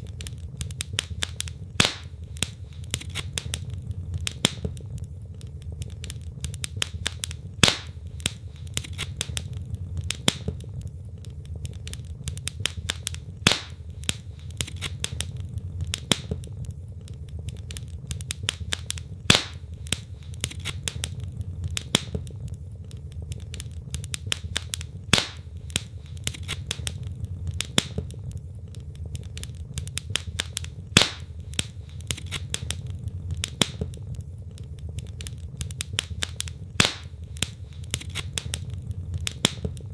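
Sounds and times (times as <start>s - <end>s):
low rumble of flames: 0.0s - 39.9s
sharp fire pops: 0.0s - 39.9s
wood logs crackling in fireplace: 0.0s - 39.9s.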